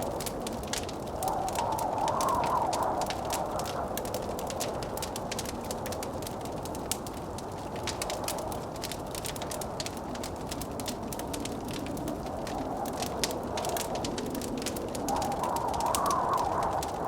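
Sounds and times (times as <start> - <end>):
blizzard wind rushing: 0.0 - 17.0
wood fire crackling and popping: 0.0 - 17.0.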